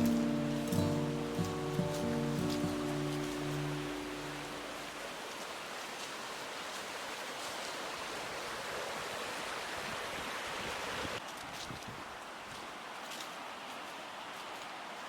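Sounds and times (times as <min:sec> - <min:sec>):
flowing water rushing: 0:00.0 - 0:11.2.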